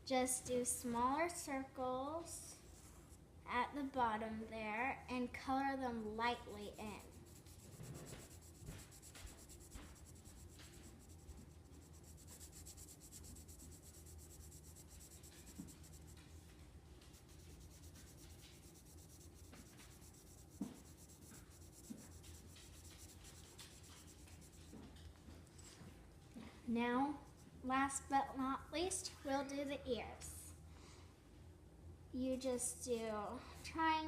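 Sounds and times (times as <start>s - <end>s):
low steady hum: 0.0s - 34.0s
pencil scratching on paper: 6.5s - 16.4s, 17.0s - 25.0s.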